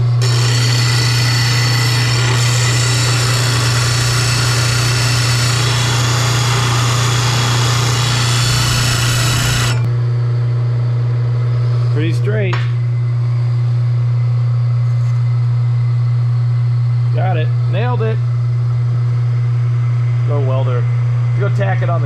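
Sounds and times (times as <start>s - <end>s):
disc sander grinding metal: 0.0s - 9.9s
constant low hum: 0.0s - 22.0s.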